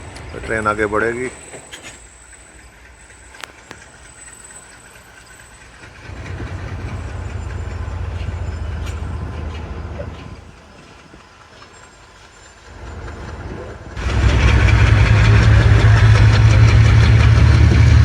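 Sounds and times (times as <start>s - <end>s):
passenger train rumble: 0.0s - 18.0s.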